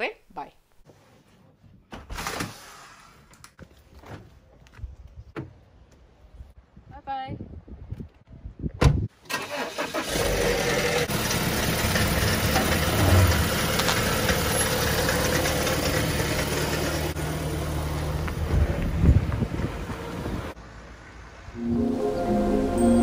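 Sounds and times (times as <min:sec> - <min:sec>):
car engine idling: 0:10.8 - 0:18.4.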